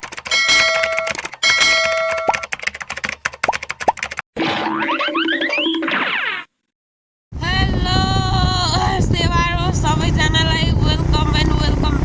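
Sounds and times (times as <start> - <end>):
fast run of clicks: 0.0 - 4.2.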